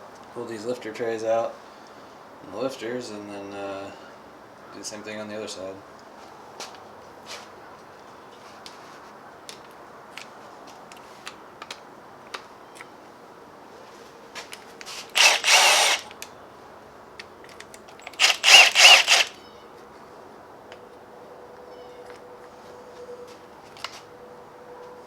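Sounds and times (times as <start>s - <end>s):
power driver backing out bolts: 15.1s - 16.2s, 17.9s - 19.4s
light clicks of tools and parts: 17.2s - 19.9s.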